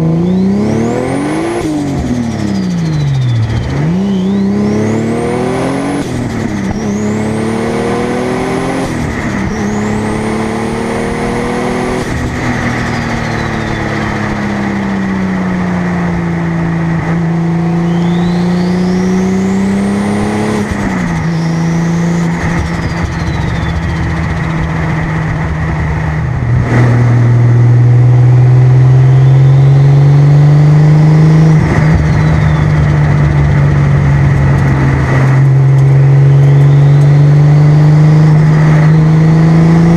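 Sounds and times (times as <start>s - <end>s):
turbo whistle: 0.0s - 1.4s, 2.0s - 5.7s, 12.8s - 14.2s, 17.7s - 19.8s, 21.1s - 24.5s, 28.9s - 29.8s, 31.8s - 33.0s, 36.2s - 37.2s
car engine revving through gears: 0.0s - 39.9s.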